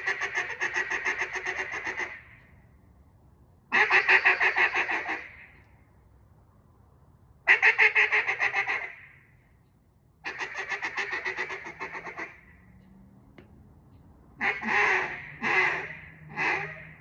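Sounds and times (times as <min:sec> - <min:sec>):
duck call pulsed notes: 0:14.4 - 0:16.9.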